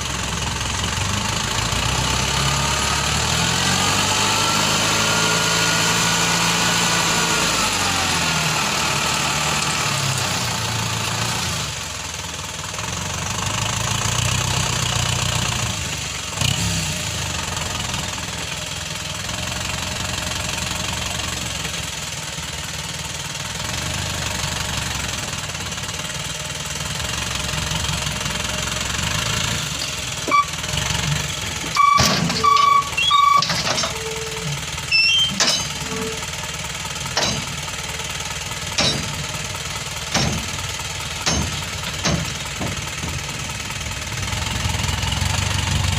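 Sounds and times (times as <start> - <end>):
diesel truck engine idling: 0.0 - 3.8, 7.8 - 16.4, 17.3 - 45.9
short loud high tones: 31.7 - 36.3.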